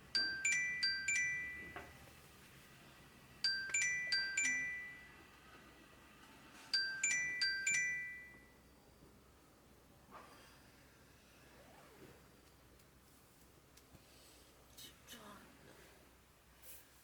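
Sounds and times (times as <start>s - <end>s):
ringing chime tune: 0.2s - 2.0s, 3.4s - 5.2s, 6.8s - 8.6s.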